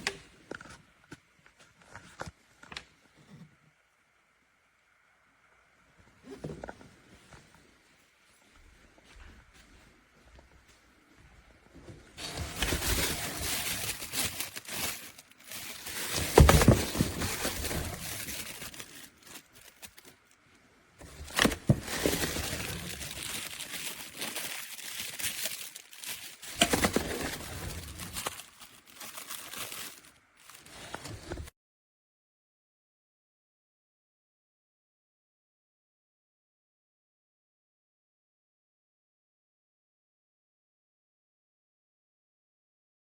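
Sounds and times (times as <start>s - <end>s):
crinkling and rustling: 0.0s - 3.5s, 6.1s - 31.5s.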